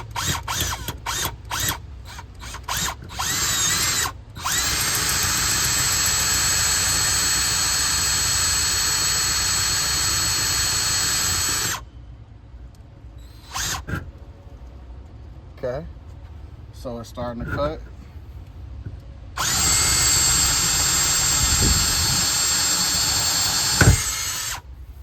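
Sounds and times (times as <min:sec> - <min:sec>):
power drill boring into wood: 0:00.0 - 0:11.8, 0:13.4 - 0:14.0, 0:19.4 - 0:24.6.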